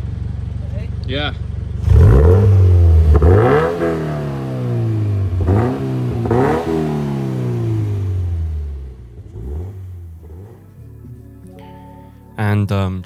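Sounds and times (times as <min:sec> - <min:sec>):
car engine revving: 0:01.3 - 0:11.4.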